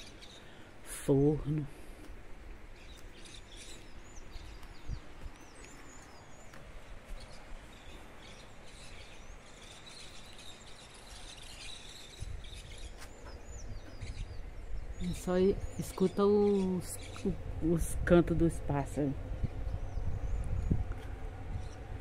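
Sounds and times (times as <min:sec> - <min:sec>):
birds chirping and whistling: 0:02.8 - 0:17.4, 0:19.4 - 0:21.9.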